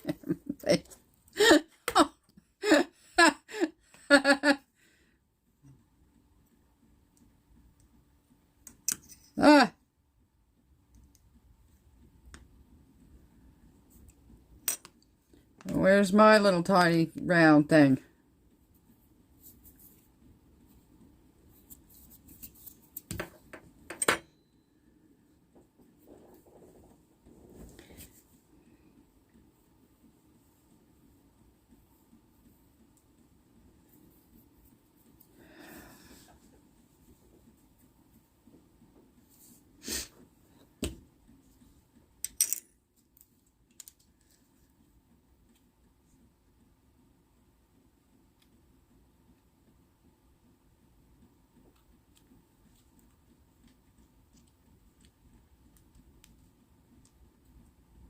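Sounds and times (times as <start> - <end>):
small metal parts clinking: 42.2 - 42.7.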